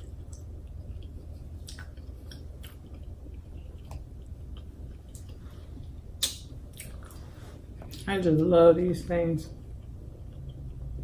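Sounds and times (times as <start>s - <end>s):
chewing mouth sounds: 0.0s - 5.4s, 6.2s - 8.1s
low hum: 0.0s - 11.0s.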